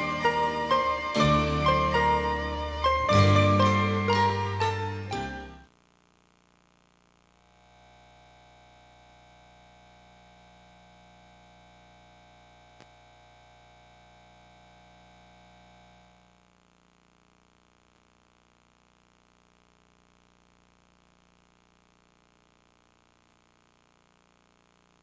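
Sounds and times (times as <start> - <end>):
music: 0.0 - 5.7
electrical hum and hiss: 0.0 - 25.0
faint click: 12.7 - 13.0, 17.9 - 18.2.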